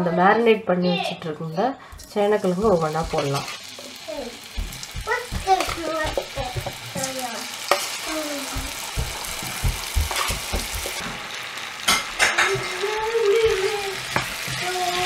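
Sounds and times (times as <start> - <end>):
spatula stirring food: 1.8 - 11.2, 11.9 - 15.0
food sizzling in hot oil: 1.9 - 15.0
utensil knocks: 4.5 - 7.1, 8.5 - 11.0.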